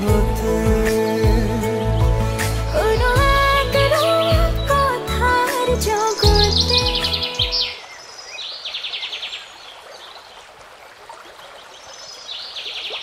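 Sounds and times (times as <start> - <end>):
background music: 0.0 - 7.8.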